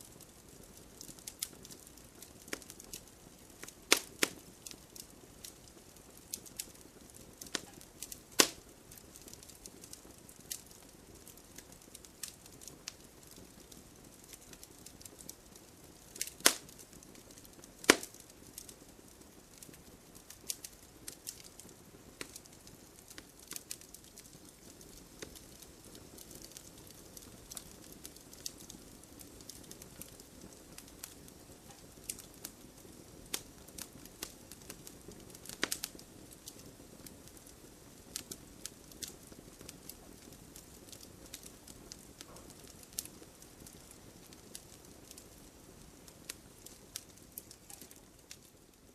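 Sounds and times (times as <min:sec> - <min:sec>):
loud fire snaps: 0:00.0 - 0:48.9
low steady hiss: 0:00.0 - 0:48.9
wood campfire crackling: 0:00.0 - 0:48.9.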